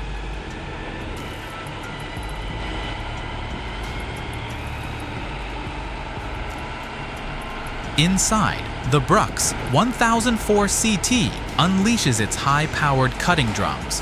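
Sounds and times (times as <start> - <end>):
wood chipper running: 0.0 - 14.0.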